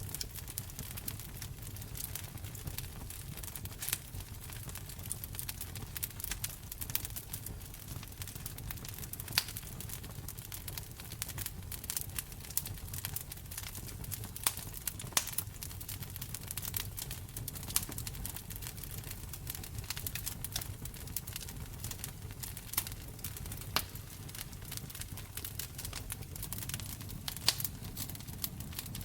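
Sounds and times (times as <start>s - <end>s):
low rumble of burning: 0.0s - 29.0s
wood fire crackling and popping: 0.0s - 29.0s.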